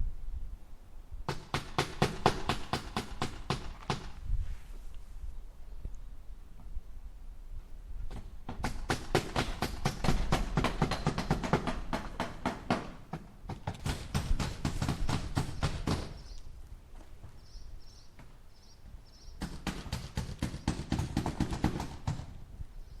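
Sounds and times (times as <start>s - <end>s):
hammer striking nails into wood: 1.3s - 4.2s, 8.1s - 16.2s, 19.4s - 22.3s.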